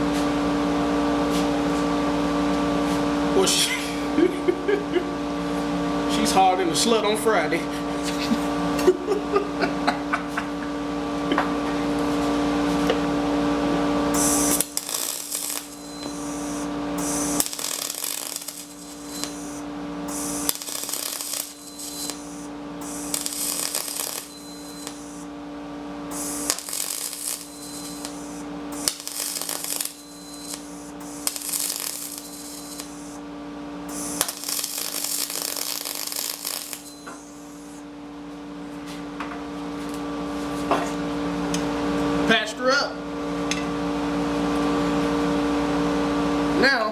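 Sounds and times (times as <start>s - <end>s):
welding machine hum: 0.0s - 40.4s
crackling welding arc hiss: 14.0s - 25.4s, 26.0s - 37.8s.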